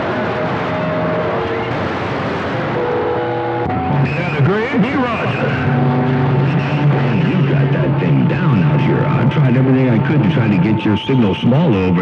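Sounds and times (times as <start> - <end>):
faint whistling radio tones: 0.0 - 1.8, 2.8 - 12.0
radio static hiss: 0.0 - 12.0.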